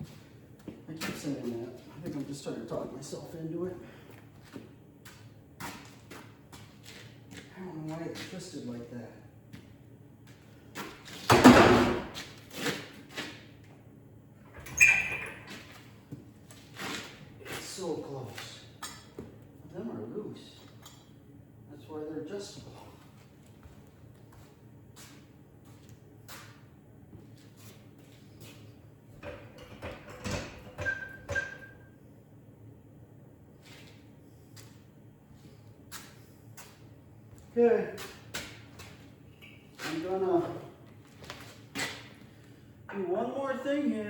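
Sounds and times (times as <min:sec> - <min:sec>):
high metallic squeak: 0:14.7 - 0:15.6.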